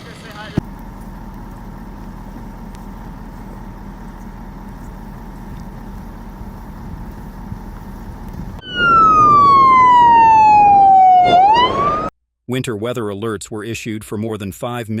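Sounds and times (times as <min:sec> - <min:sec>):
traffic noise: 0:00.0 - 0:08.6
emergency vehicle siren wailing: 0:00.7 - 0:12.1.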